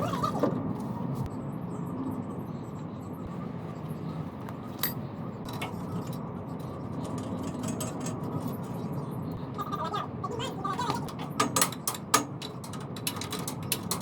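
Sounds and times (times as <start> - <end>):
steady low hum: 0.0 - 14.0
metal tools clinking: 4.8 - 6.2.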